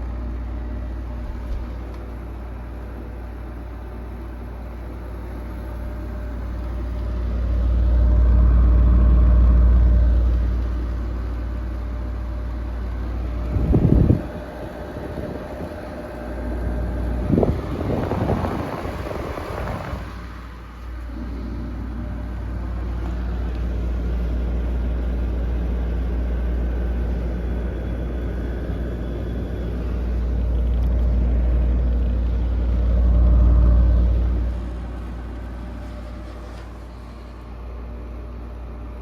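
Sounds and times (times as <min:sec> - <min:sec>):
air conditioner humming: 0:00.0 - 0:39.0
rushing air: 0:13.4 - 0:21.4.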